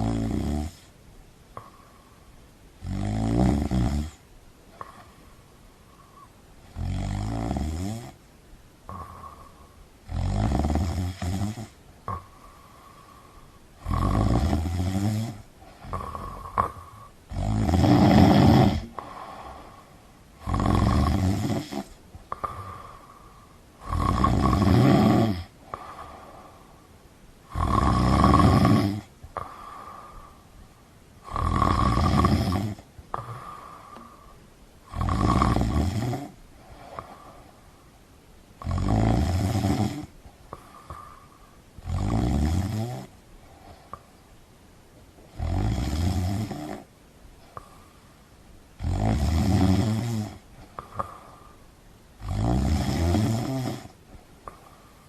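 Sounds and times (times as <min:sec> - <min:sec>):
person snoring: 0:00.0 - 0:00.9, 0:02.8 - 0:04.2, 0:06.0 - 0:08.2, 0:08.9 - 0:26.7, 0:27.4 - 0:30.4, 0:31.2 - 0:37.5, 0:38.6 - 0:43.2, 0:45.3 - 0:46.9, 0:48.8 - 0:51.6, 0:52.2 - 0:54.7.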